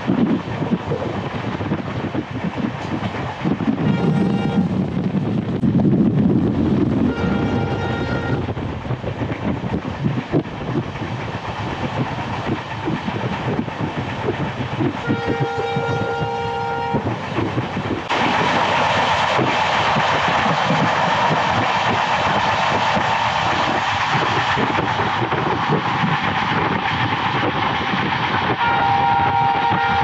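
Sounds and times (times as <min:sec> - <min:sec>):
steady rushing noise: 0:00.0 - 0:30.0
train rumbling on track: 0:00.0 - 0:30.0
train horn: 0:03.9 - 0:04.8, 0:07.1 - 0:08.4, 0:15.0 - 0:17.0, 0:28.6 - 0:30.0.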